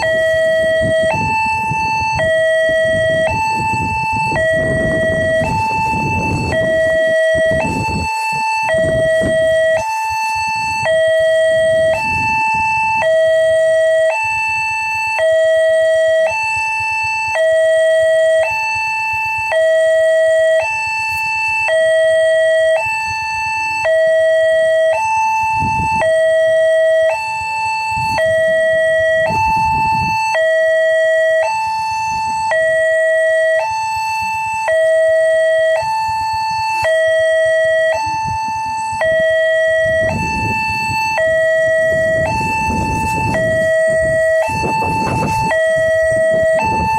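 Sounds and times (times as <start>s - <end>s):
low rumbles: 0.0s - 18.4s, 34.7s - 46.9s
two-tone level crossing alarm: 0.0s - 46.9s.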